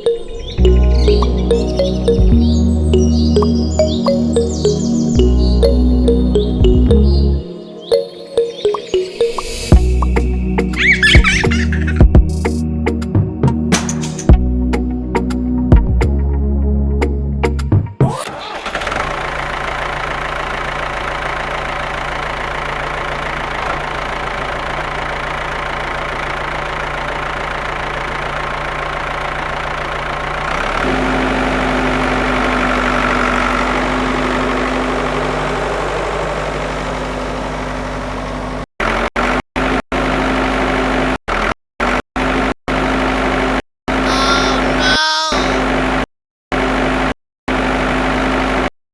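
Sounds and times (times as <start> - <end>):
tractor engine idling: 0.0 - 7.4, 18.2 - 38.6.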